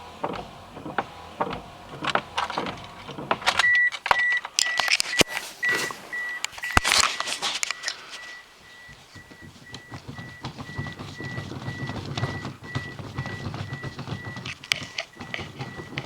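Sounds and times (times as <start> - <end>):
car door clicks and knocks: 0.0 - 5.3, 8.9 - 16.0
car warning chime beeping: 0.1 - 16.0
footsteps: 5.0 - 16.0.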